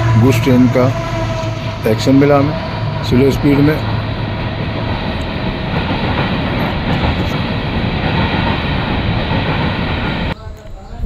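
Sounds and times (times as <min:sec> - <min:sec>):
steel wheels rolling on rails: 0:00.0 - 0:10.4.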